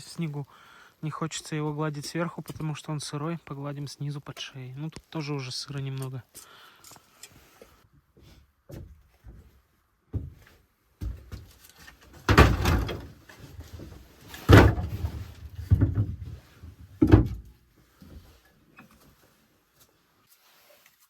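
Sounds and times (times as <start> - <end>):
heavy knocks and thumps: 12.3 - 13.2, 14.4 - 17.5.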